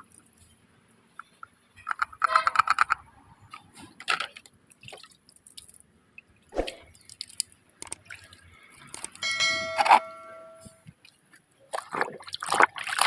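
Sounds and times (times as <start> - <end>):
water dripping and splashing: 4.2 - 10.3, 10.9 - 13.0
ringing tone: 9.2 - 10.8.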